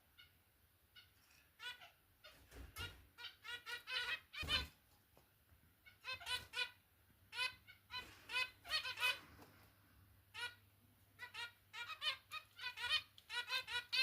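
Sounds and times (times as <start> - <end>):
finches beeping calls: 0.9 - 4.7, 5.8 - 9.3, 11.2 - 14.0.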